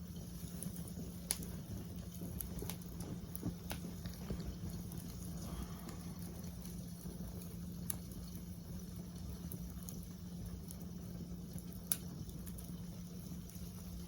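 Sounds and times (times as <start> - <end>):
campfire rumbling and hissing: 0.0 - 14.0
fire crackling pops: 0.0 - 14.0.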